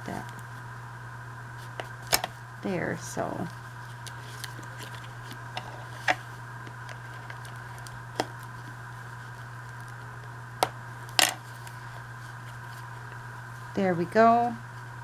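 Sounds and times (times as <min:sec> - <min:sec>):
steady background hum: 0:00.0 - 0:15.0
paper envelope being folded: 0:01.5 - 0:02.5, 0:03.3 - 0:13.7.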